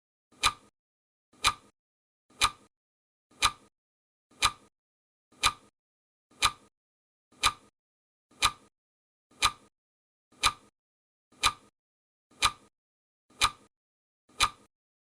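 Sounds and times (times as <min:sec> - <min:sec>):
clock ticking: 0:00.4 - 0:00.7, 0:01.4 - 0:01.7, 0:02.3 - 0:02.7, 0:03.4 - 0:03.7, 0:04.4 - 0:04.7, 0:05.4 - 0:05.7, 0:06.4 - 0:06.7, 0:07.4 - 0:07.7, 0:08.4 - 0:08.7, 0:09.4 - 0:09.7, 0:10.4 - 0:10.7, 0:11.4 - 0:11.7, 0:12.4 - 0:12.7, 0:13.3 - 0:13.7, 0:14.3 - 0:14.7.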